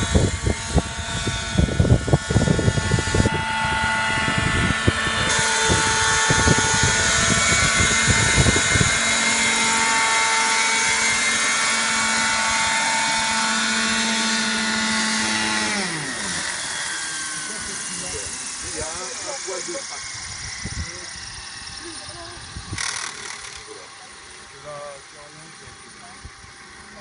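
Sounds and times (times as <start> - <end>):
low gusty buffeting: 0.0 - 13.7
helicopter engine whine: 0.0 - 27.0.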